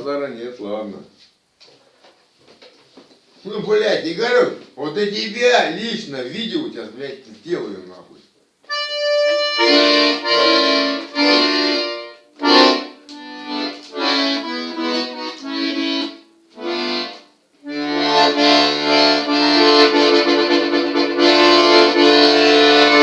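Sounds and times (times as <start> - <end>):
accordion playing chords: 8.6 - 23.0.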